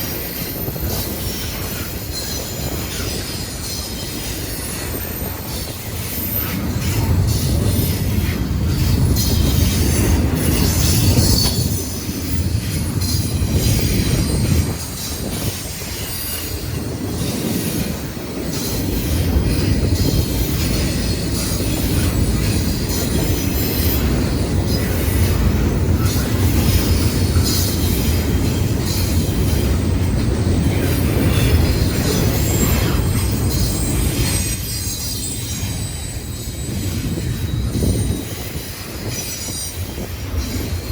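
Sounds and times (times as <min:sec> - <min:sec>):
freight train rumbling past: 0:00.0 - 0:40.9
train wheels squealing on rail: 0:00.0 - 0:40.9.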